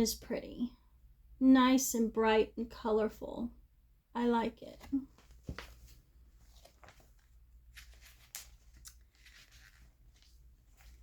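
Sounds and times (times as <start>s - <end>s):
magazine pages rustling: 5.1s - 11.0s.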